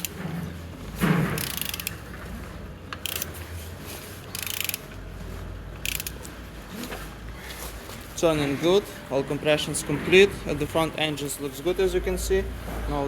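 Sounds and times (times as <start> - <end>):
diesel engine turned over by hand: 0.0 - 3.6
ratchet wrench clicking: 1.4 - 2.1, 3.0 - 3.4, 4.2 - 5.0, 5.8 - 6.3.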